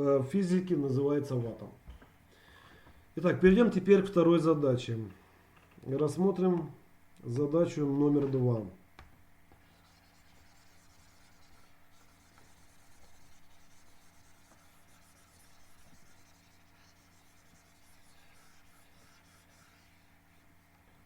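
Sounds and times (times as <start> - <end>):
pen scratching on paper: 9.6 - 20.5.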